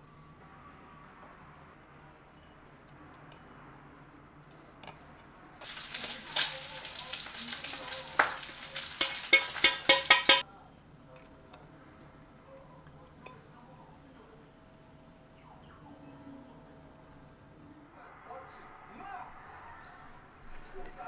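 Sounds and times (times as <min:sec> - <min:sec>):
food sizzling in a pan: 0:05.6 - 0:10.4
sharp spattering pops: 0:05.6 - 0:10.4.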